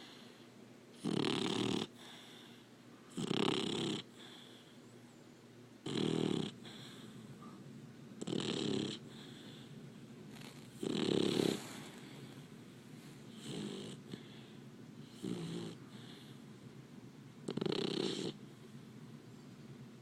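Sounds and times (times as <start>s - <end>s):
puppy snoring: 1.0s - 4.7s, 5.8s - 7.6s, 8.2s - 9.7s, 10.3s - 12.4s, 13.0s - 16.4s, 17.4s - 18.6s.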